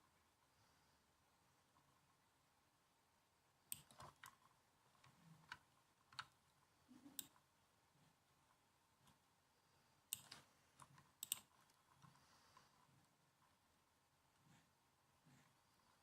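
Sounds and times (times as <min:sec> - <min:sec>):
laptop keyboard typing: 0:03.7 - 0:06.4, 0:10.1 - 0:12.7.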